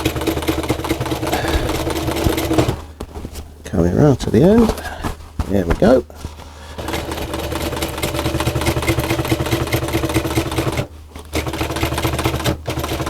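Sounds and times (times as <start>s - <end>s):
sewing machine stitching: 0.0s - 2.9s, 6.7s - 13.0s.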